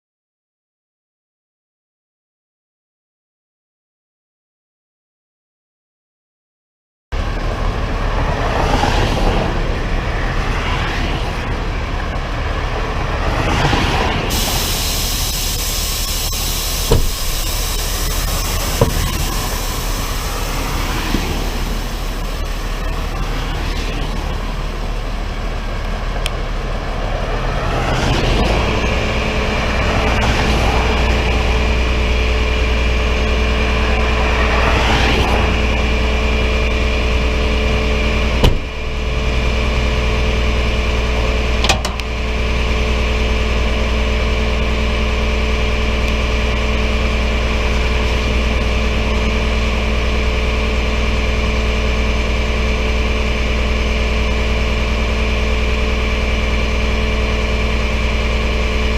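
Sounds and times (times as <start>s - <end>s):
vehicle engine running: 7.1s - 58.9s
sharp knocks: 16.9s - 17.4s.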